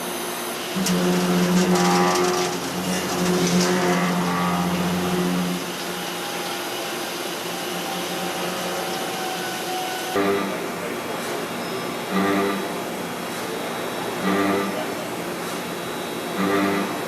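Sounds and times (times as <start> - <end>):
cnc mill running: 0.6 - 11.2
pitched hum with overtones: 0.8 - 6.0.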